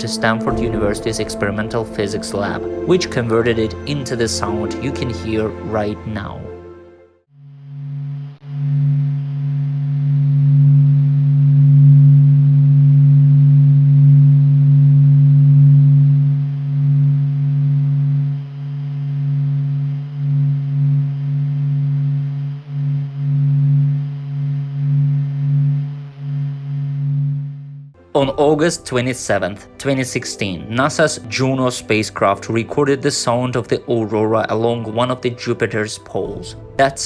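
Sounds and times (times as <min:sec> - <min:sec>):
deep low humming tones: 0:00.0 - 0:06.8, 0:07.6 - 0:28.0.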